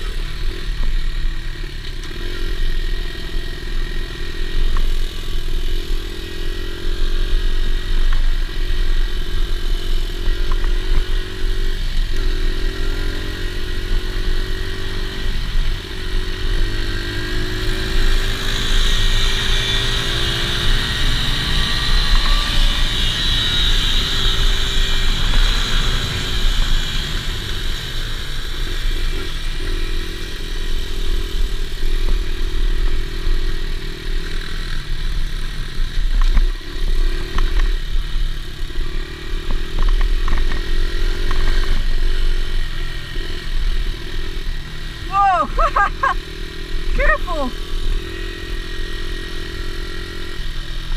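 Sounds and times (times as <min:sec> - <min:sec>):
dirt bike engine running: 0:00.0 - 0:50.9.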